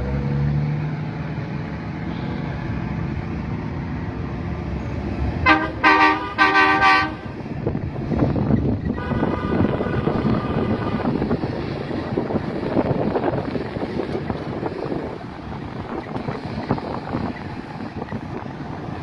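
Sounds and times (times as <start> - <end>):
heavy truck rumbling: 0.0 - 19.0
air horn blasts: 5.4 - 7.4, 9.0 - 11.1.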